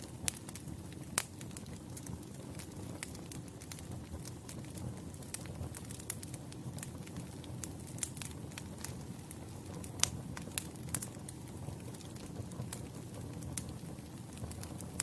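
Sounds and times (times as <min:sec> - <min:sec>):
burning logs popping and snapping: 0:00.0 - 0:15.0
rumble of campfire flames: 0:00.0 - 0:15.0.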